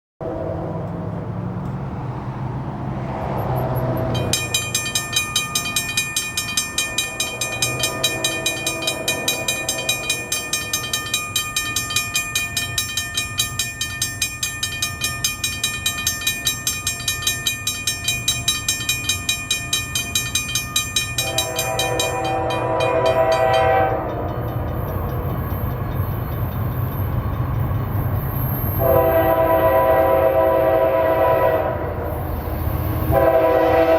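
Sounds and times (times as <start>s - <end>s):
diesel freight train: 0.2s - 33.9s
crossing bell ringing: 3.1s - 33.9s
locomotive horn chord: 7.0s - 10.7s, 21.2s - 24.2s, 28.8s - 32.2s, 33.0s - 33.9s.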